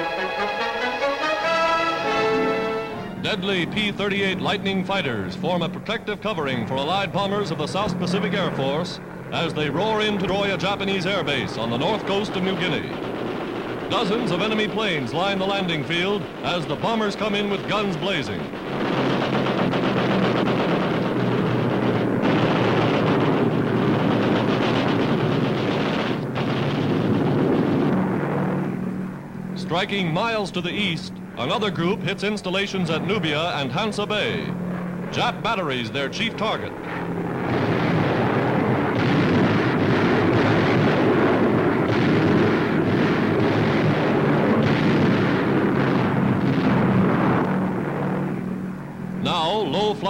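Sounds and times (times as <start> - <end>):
dense roar of aircraft: 0.0 - 50.0
rumble of explosions and gunfire: 0.0 - 50.0
machine-gun fire: 11.8 - 28.4, 37.4 - 47.8.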